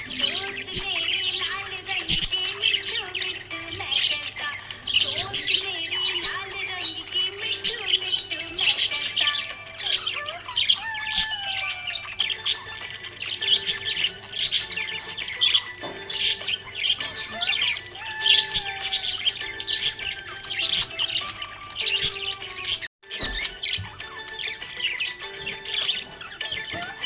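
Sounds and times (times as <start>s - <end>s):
budgerigar chirping and chattering: 0.0s - 27.0s.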